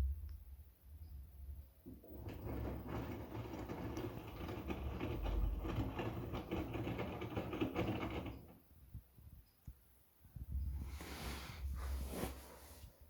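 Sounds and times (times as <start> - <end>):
washing machine motor hum: 1.8 - 8.8
laundry clattering in drum: 1.9 - 8.6.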